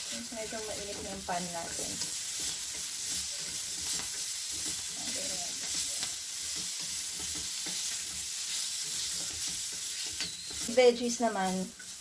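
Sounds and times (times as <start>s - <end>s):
green beans sizzling in butter: 0.0s - 12.0s
utensil scraping and tapping pan: 0.4s - 10.8s.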